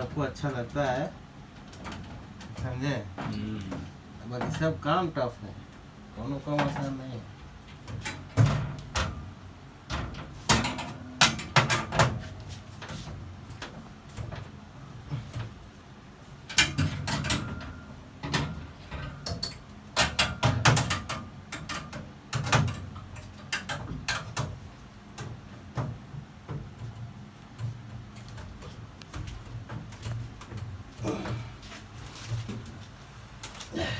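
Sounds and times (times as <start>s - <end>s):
hand tools clanking on metal: 9.9s - 12.4s.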